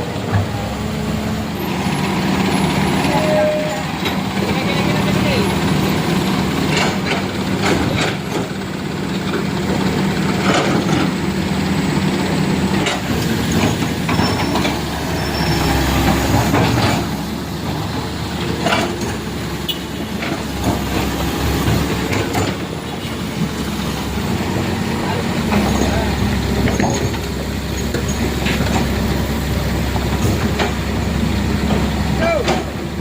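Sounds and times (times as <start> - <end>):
truck engine running: 0.0 - 33.0
sharp clicks and knocks: 6.6 - 8.5.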